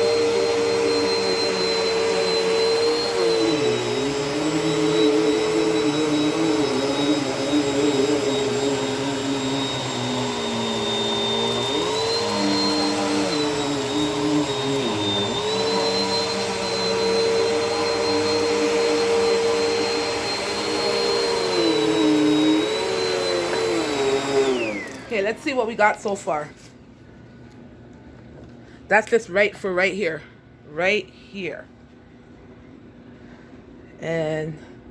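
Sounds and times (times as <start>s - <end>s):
vacuum cleaner running: 0.0s - 26.5s.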